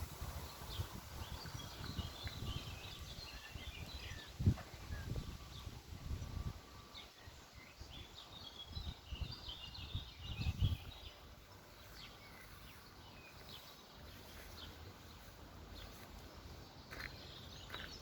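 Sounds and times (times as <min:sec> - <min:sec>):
birds chirping and singing: 0:00.3 - 0:18.0.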